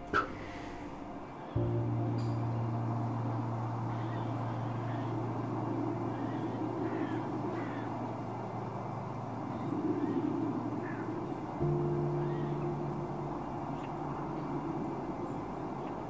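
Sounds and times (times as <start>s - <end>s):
low held music note: 0.0s - 6.7s
birds chirping: 0.0s - 16.0s
harsh bird calls: 3.4s - 16.0s.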